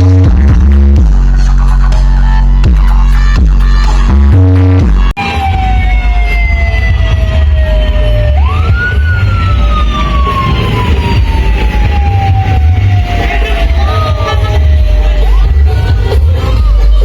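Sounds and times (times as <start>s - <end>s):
electronic music: 0.0s - 17.0s
heavy pounding bass: 0.0s - 17.0s
siren-style wail: 5.2s - 16.9s.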